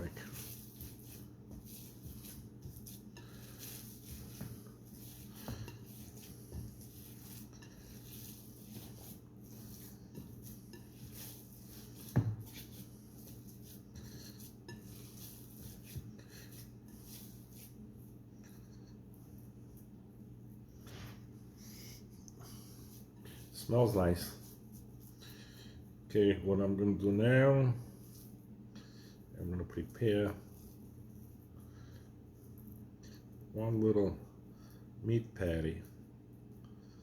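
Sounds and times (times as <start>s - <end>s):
hands squishing ground meat: 0.0s - 19.9s.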